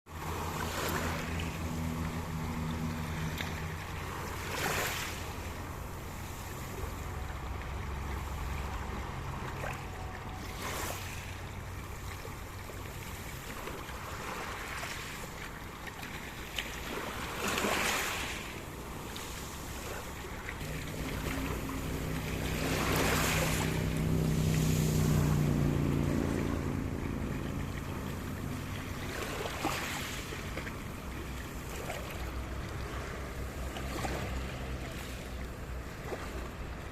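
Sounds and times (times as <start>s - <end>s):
wind: 0.0s - 36.9s
waves breaking: 0.1s - 36.9s
low hum: 20.3s - 29.1s.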